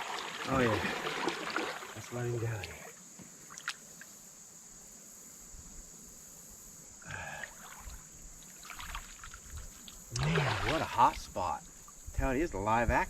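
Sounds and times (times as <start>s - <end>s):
faint water sounds: 0.0s - 4.4s, 7.0s - 13.0s
steady high-pitched hiss: 0.0s - 13.0s.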